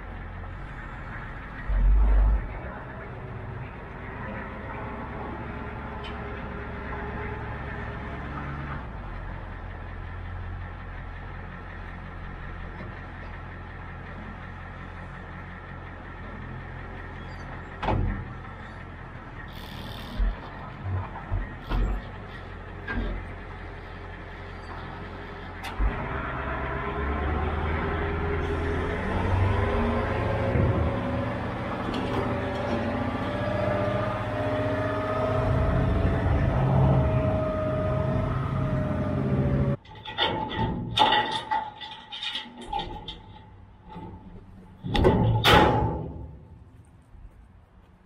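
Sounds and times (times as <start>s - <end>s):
vehicle engine running: 0.0s - 39.8s
thumps: 39.9s - 46.6s.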